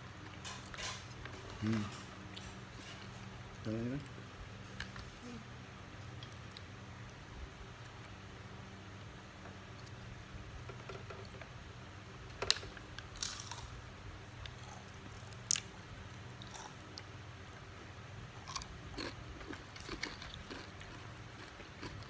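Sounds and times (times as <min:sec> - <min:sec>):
person chewing and biting food: 0:18.4 - 0:22.0.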